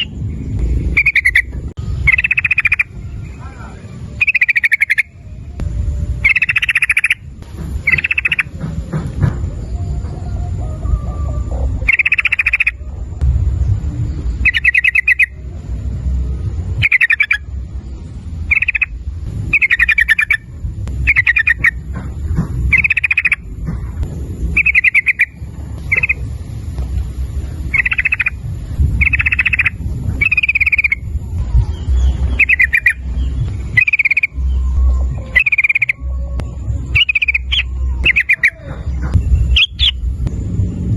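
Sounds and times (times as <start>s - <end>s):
bird calling with bubbling notes: 0.0s - 0.2s, 0.9s - 5.6s, 6.2s - 8.6s, 9.6s - 13.0s, 14.3s - 15.5s, 16.8s - 17.6s, 18.4s - 21.9s, 22.6s - 26.3s, 27.6s - 40.0s
steady low rumble: 0.0s - 40.9s.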